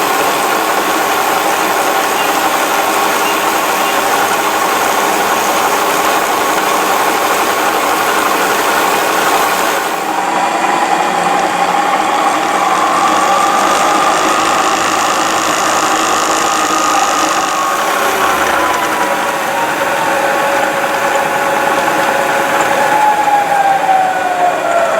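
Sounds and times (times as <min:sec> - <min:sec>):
milling machine hum and whine: 0:00.0 - 0:24.9.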